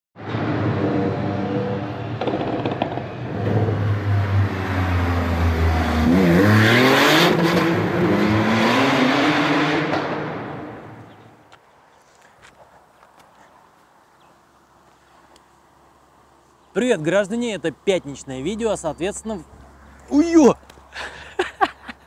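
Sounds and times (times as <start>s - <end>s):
car engine revving: 0.2s - 11.2s.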